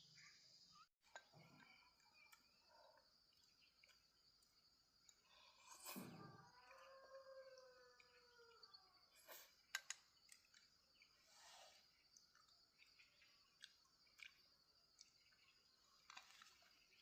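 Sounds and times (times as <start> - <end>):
faint drawn-out animal call: 5.1 - 9.7.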